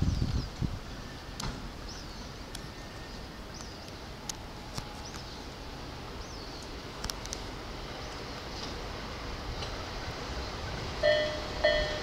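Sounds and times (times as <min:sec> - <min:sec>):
small birds chirping: 0:00.0 - 0:08.4
faint city noise: 0:00.0 - 0:12.0.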